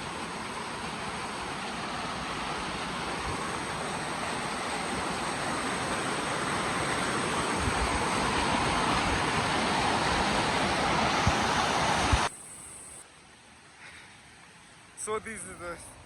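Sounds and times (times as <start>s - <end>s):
waterfall rushing: 0.0s - 12.3s
wind thumps on microphone: 7.6s - 12.3s.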